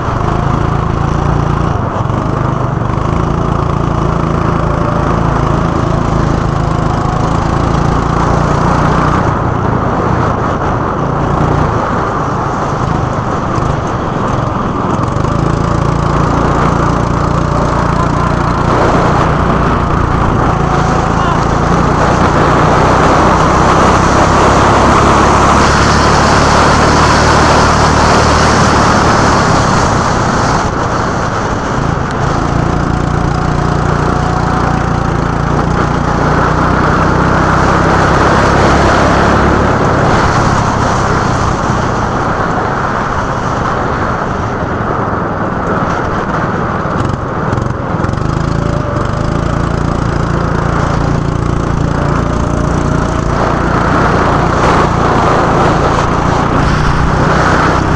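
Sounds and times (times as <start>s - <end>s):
go-kart engine running: 0.0s - 57.9s
kart rattling: 0.0s - 57.9s.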